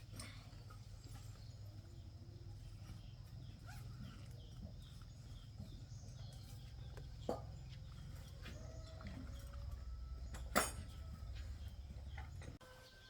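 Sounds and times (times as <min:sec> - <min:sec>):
small bird chirping: 0:00.3 - 0:13.0.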